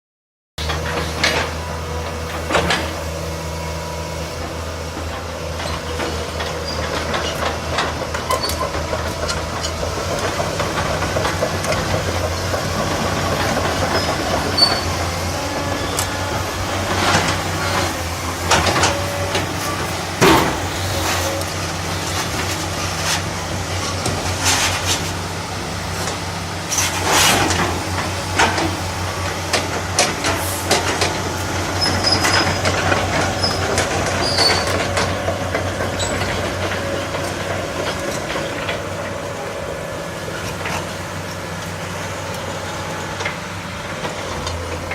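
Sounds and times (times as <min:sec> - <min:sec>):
excavator diesel engine running: 0:00.6 - 0:44.9
metallic clanks and squeaks: 0:05.6 - 0:09.8, 0:13.6 - 0:16.2, 0:31.7 - 0:38.9.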